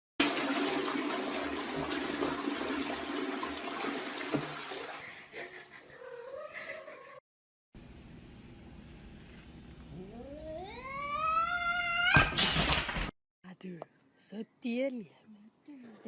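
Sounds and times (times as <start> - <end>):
cat meowing: 10.0 - 12.3.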